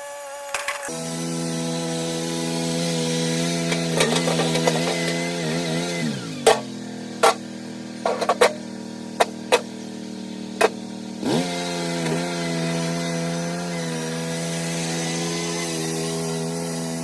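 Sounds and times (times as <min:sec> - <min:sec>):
skid steer engine revving: 0:00.9 - 0:17.0
sharp knocks: 0:06.5 - 0:07.4.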